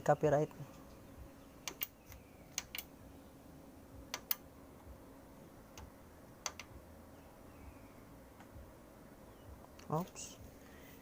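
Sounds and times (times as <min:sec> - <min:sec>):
faint steady hum: 0:00.0 - 0:11.0
sharp clicks: 0:01.6 - 0:02.9, 0:04.1 - 0:04.4, 0:05.7 - 0:06.8.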